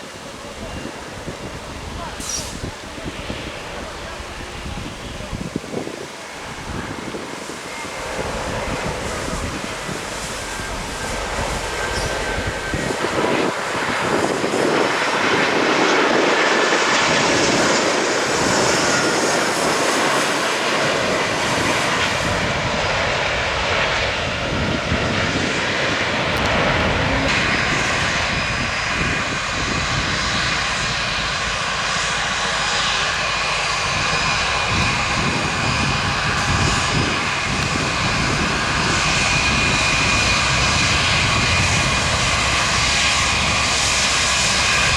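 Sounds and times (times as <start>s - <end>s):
aircraft engines running: 0.0s - 44.9s.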